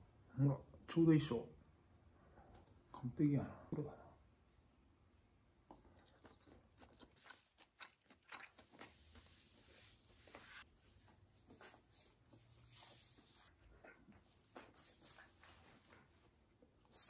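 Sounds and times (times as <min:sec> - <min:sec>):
person chewing: 0:05.6 - 0:10.6.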